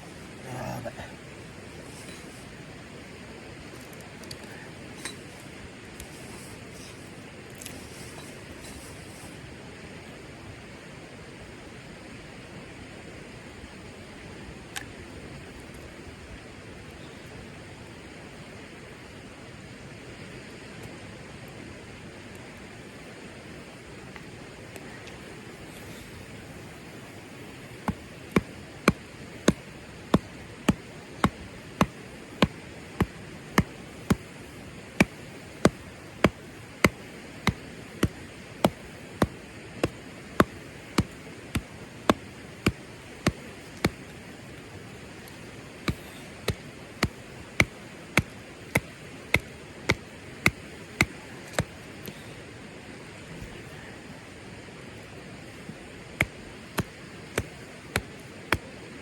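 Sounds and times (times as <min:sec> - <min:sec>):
steady hiss: 0:00.0 - 0:59.0
sharp evenly spaced knocks: 0:27.7 - 0:44.1, 0:45.8 - 0:51.7, 0:56.2 - 0:58.7.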